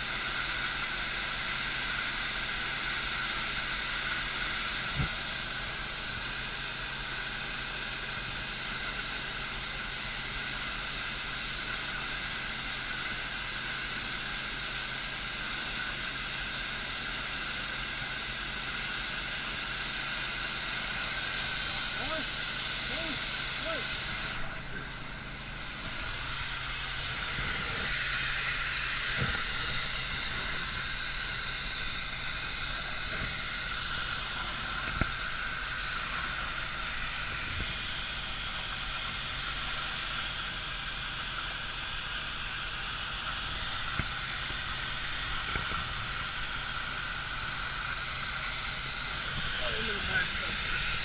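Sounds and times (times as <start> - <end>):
steady hissing rush: 0.0 - 51.0
engine humming: 20.8 - 51.0.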